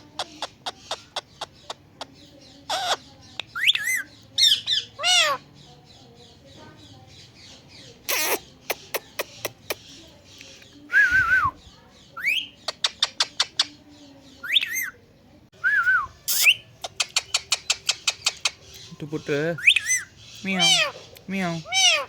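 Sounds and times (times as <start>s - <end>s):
parrot squawks: 2.7s - 3.0s, 3.6s - 5.4s, 8.1s - 9.3s, 14.4s - 15.0s, 19.6s - 21.0s, 21.6s - 22.0s
parrot clicking: 8.1s - 9.8s, 16.8s - 18.8s.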